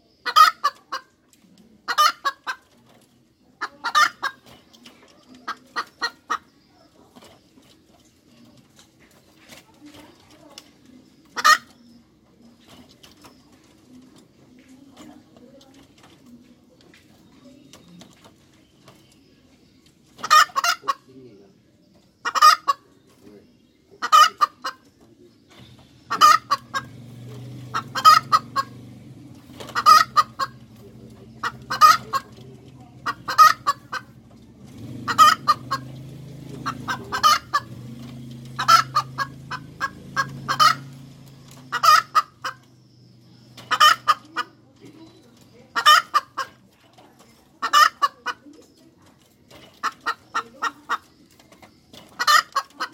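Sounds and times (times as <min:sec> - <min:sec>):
hen cackling: 0:00.2 - 0:01.2, 0:01.8 - 0:02.6, 0:03.6 - 0:04.4, 0:11.3 - 0:11.7, 0:20.2 - 0:21.1, 0:22.2 - 0:22.9, 0:24.0 - 0:24.8, 0:26.0 - 0:28.8, 0:29.4 - 0:34.2, 0:34.8 - 0:42.7, 0:43.5 - 0:44.9, 0:45.7 - 0:46.7, 0:47.6 - 0:48.4, 0:52.0 - 0:52.9.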